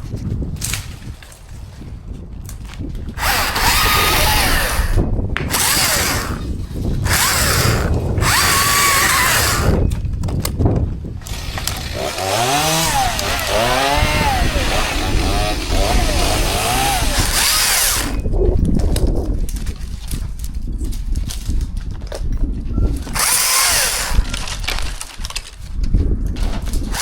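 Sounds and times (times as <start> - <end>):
chainsaw cutting at full throttle: 3.2 - 9.8, 11.2 - 18.2, 23.1 - 24.4.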